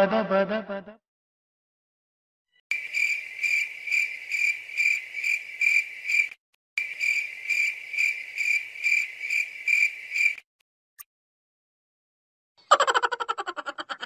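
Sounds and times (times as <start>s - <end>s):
cricket chirping trill: 2.7s - 10.5s.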